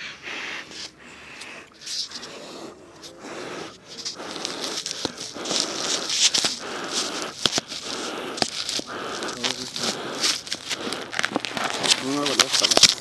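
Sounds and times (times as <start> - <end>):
campfire crackling: 1.0 - 13.0
hissing rustle of burning kindling: 1.8 - 13.0.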